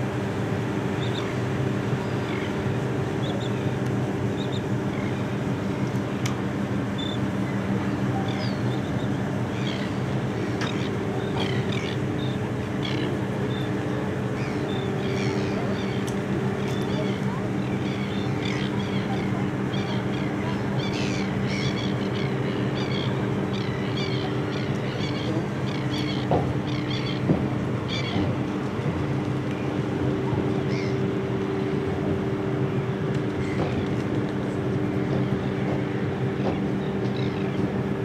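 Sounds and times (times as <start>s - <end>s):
engine drone: 0.0s - 38.0s
flock of birds calling: 30.6s - 31.2s.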